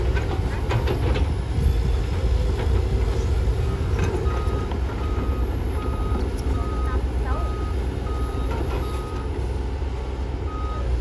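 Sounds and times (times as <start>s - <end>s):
heavy machine engine rumbling: 0.0s - 11.0s
reversing alarm beeping: 3.6s - 9.4s, 10.5s - 11.0s.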